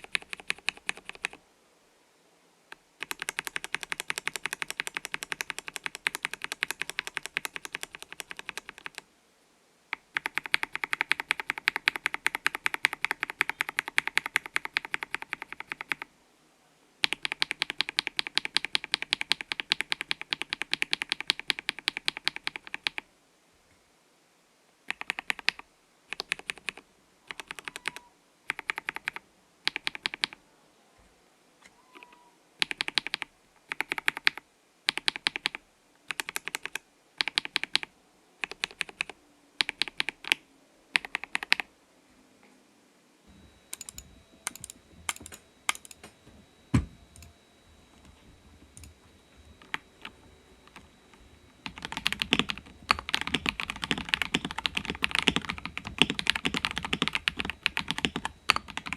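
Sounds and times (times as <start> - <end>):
mechanical keyboard typing: 0.0 - 1.4, 3.0 - 9.0, 10.0 - 16.1, 17.0 - 23.0, 24.9 - 30.4, 32.0 - 40.4, 41.0 - 41.7, 43.7 - 46.0, 48.0 - 58.9.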